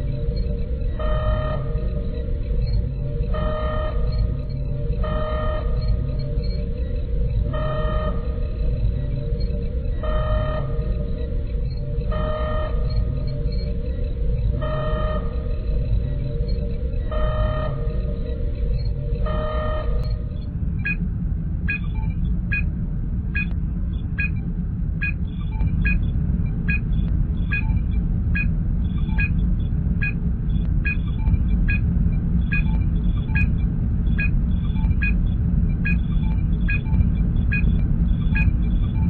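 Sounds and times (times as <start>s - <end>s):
deep engine hum: 0.0s - 39.0s
electronic scanning blip: 28.4s - 29.4s.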